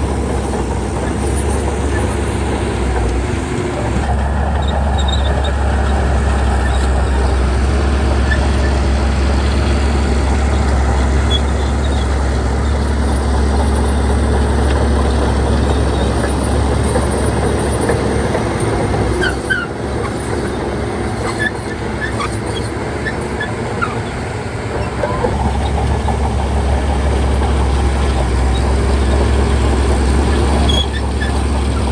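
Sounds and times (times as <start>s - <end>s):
bulldozer diesel engine droning: 0.0s - 31.9s
metallic squeaks: 4.6s - 7.4s, 10.6s - 14.1s, 19.1s - 24.2s, 30.3s - 31.9s.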